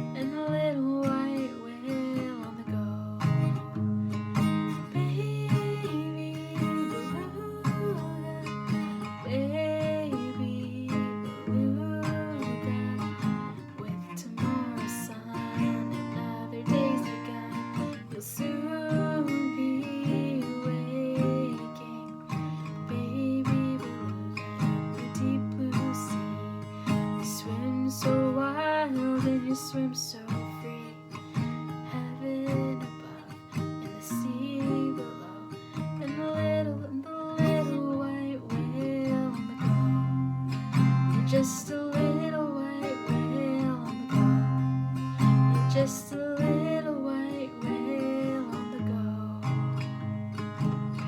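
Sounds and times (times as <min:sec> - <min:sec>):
acoustic guitar strumming: 0:00.0 - 0:51.0
person singing: 0:04.9 - 0:26.6.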